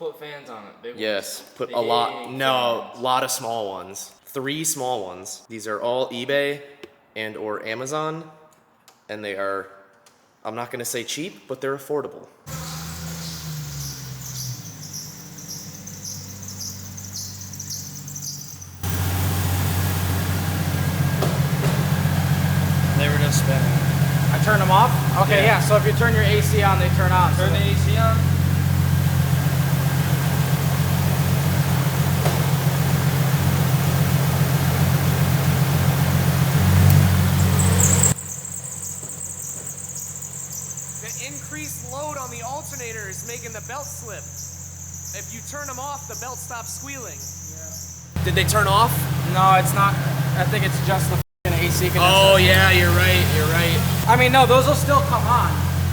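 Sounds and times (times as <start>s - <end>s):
faint high chirr: 12.5s - 21.1s, 36.7s - 48.2s
electric cooling fans whooshing: 12.5s - 38.1s, 48.2s - 55.9s
engine idling: 12.5s - 55.9s
insects chirping: 12.5s - 55.9s.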